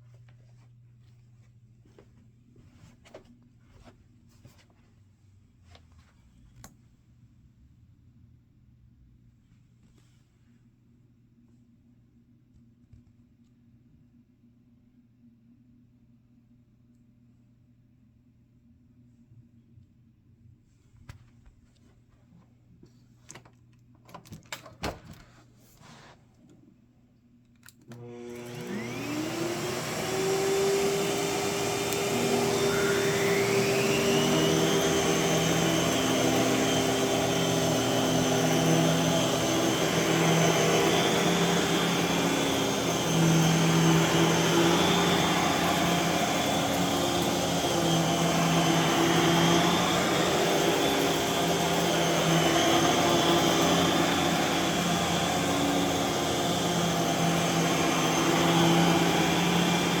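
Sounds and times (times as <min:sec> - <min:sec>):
vacuum cleaner motor whine: 0:27.9 - 1:00.0.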